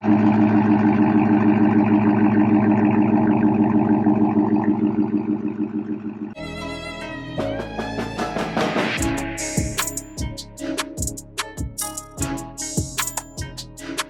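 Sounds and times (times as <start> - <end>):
car engine idling: 0.0 - 6.4
string music: 6.4 - 14.0.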